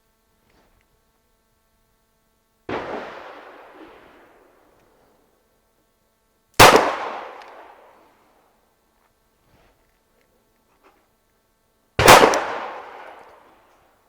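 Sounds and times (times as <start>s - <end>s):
pistol shots echoing: 2.7s - 4.6s, 6.6s - 7.9s, 12.0s - 13.4s.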